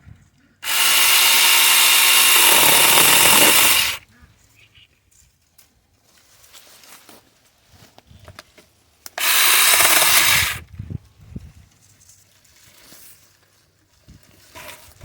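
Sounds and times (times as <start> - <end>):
chainsaw cutting through branch: 0.6 - 4.0, 9.2 - 10.6.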